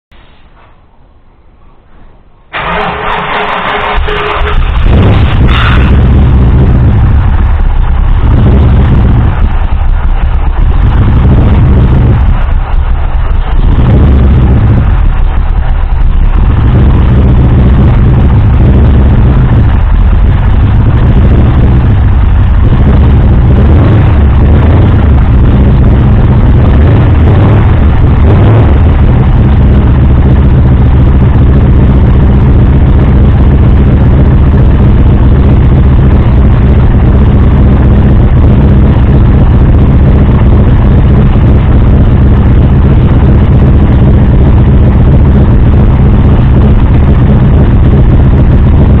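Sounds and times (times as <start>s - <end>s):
engine idling: 2.2s - 49.0s.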